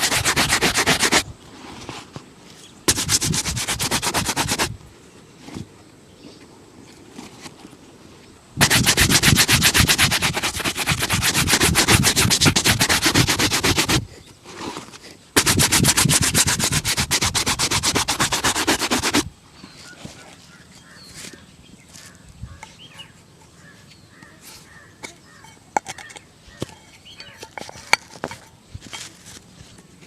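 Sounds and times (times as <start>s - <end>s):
buffing strokes on leather shoe: 0.0s - 1.3s, 2.9s - 4.8s, 8.6s - 14.1s, 15.4s - 19.3s.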